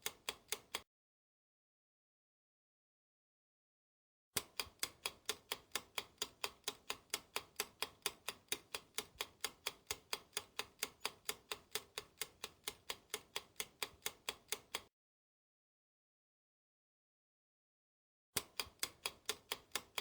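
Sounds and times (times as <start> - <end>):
clock ticking: 0.0 - 0.8, 4.4 - 14.9, 18.4 - 20.0.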